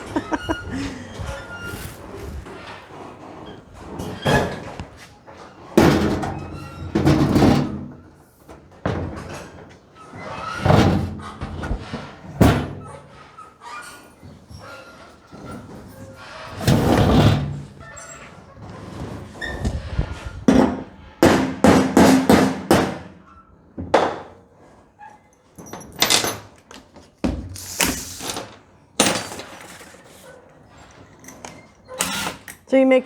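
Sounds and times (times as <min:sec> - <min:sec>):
hard knocks and clunks: 0:20.5 - 0:23.2.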